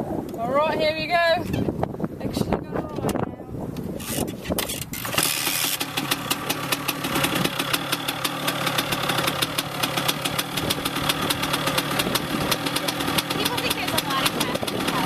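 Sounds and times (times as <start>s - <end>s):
dirt bike engine idling: 4.1s - 15.0s.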